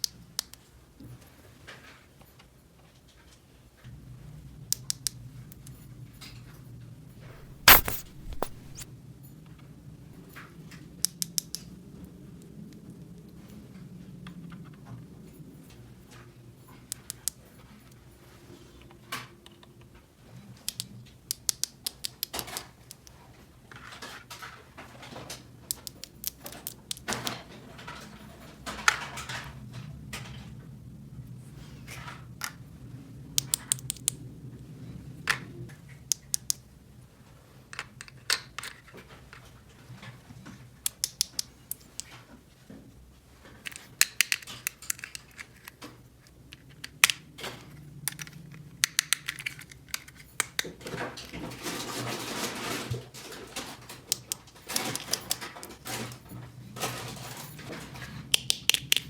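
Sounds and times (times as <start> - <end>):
plastic toy pieces clicking: 43.7 - 45.8, 48.1 - 50.6.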